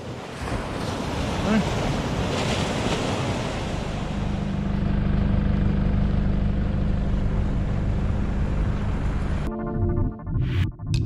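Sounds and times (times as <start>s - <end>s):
surf noise: 0.0s - 4.6s
vehicle engine droning: 4.0s - 9.5s.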